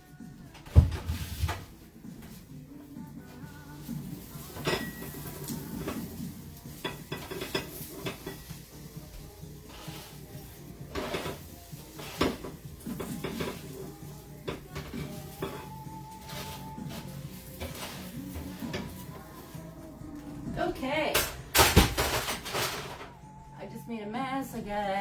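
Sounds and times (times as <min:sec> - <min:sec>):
utensil clinking against pan and bowl: 0:03.8 - 0:19.7.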